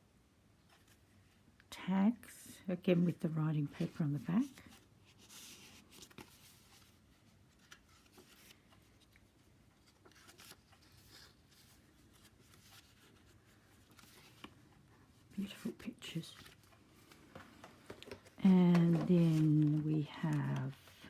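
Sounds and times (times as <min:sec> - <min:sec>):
paper rustling and clicking: 0:04.6 - 0:14.7, 0:16.3 - 0:21.0.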